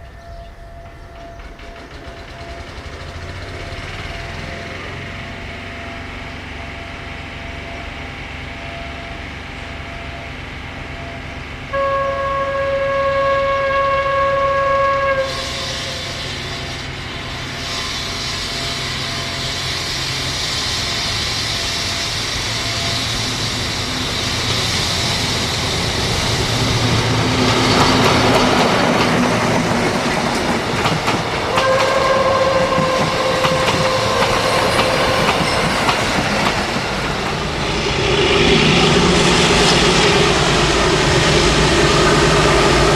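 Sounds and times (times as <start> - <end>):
wheels clattering over rail joints: 0.0 - 6.0, 16.8 - 41.0
locomotive engine running: 0.0 - 42.9
train horn blasts: 8.6 - 19.5, 31.2 - 37.1.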